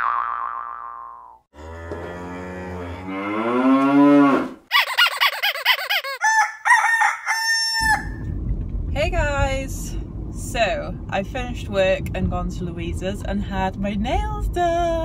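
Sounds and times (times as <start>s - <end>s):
cow mooing: 1.6s - 4.6s
chicken clucking: 4.7s - 6.5s
car engine rumble: 8.1s - 15.0s.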